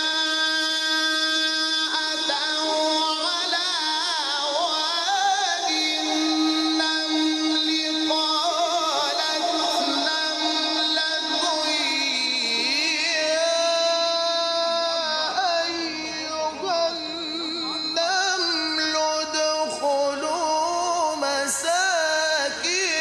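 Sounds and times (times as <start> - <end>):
man chanting recitation: 0.0 - 23.0.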